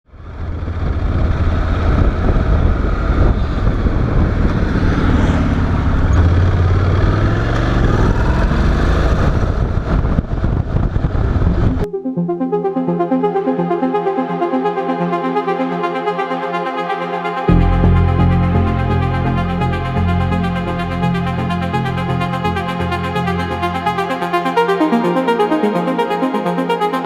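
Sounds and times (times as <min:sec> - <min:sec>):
road and wind noise: 0:00.1 - 0:11.9
music: 0:11.7 - 0:27.0.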